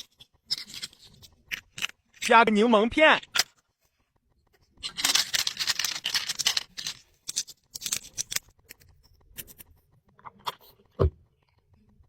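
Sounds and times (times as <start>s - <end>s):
plastic toy pieces scraping: 0.0s - 2.3s, 4.7s - 10.8s.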